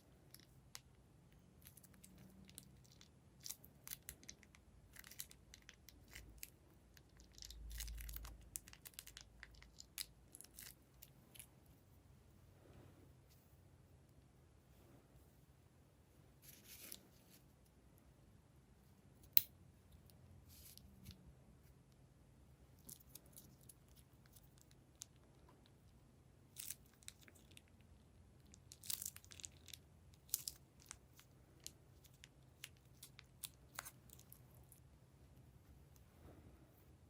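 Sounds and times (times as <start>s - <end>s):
plastic and slime crackling: 0.1s - 11.7s, 22.8s - 34.9s.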